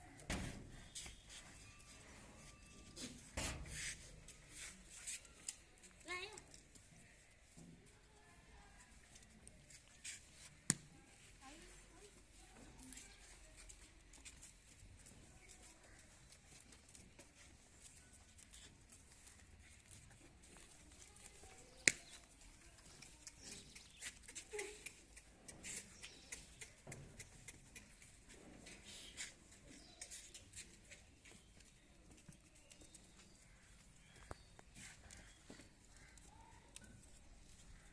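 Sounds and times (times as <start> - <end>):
small clicks of goats moving: 0.0 - 37.9
goats rustling: 8.9 - 37.9.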